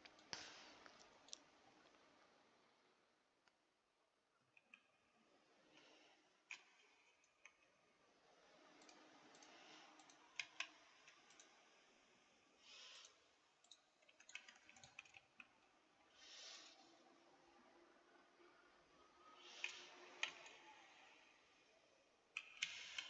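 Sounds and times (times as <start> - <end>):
computer keyboard keys clicking: 8.8 - 11.5, 12.8 - 15.7, 19.5 - 20.6, 22.4 - 23.0.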